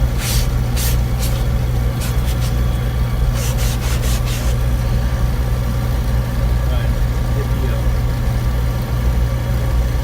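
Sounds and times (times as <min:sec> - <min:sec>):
furnace burner humming: 0:00.0 - 0:10.0
rustling scuffs: 0:00.2 - 0:02.7.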